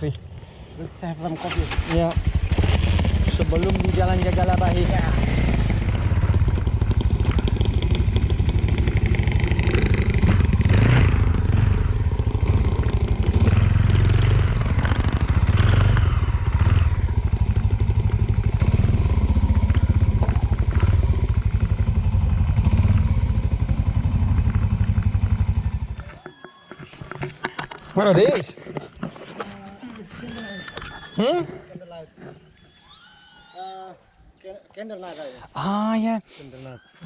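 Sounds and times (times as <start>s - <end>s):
motorcycle engine running: 1.7s - 26.2s.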